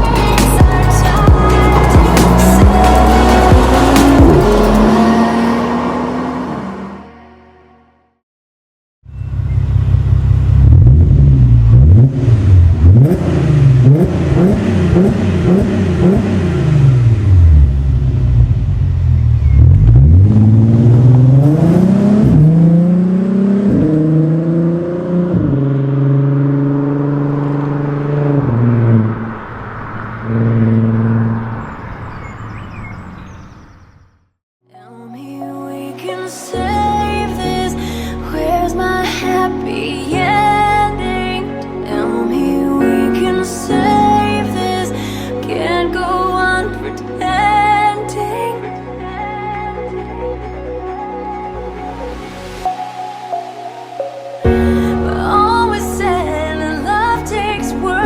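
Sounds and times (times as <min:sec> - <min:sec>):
gear changes: 0:00.0 - 0:06.9
car engine revving: 0:00.0 - 0:07.1, 0:09.4 - 0:33.2.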